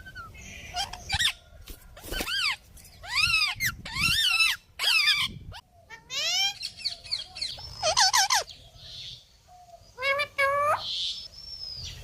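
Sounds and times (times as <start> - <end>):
parrot squawking: 2.2 - 6.8, 7.7 - 8.5.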